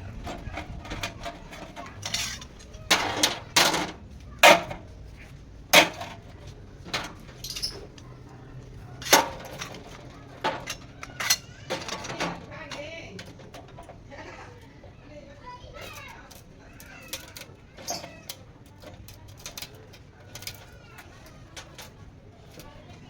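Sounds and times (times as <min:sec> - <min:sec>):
metal pieces clanking: 0:00.2 - 0:04.8, 0:06.9 - 0:08.0, 0:09.0 - 0:13.9.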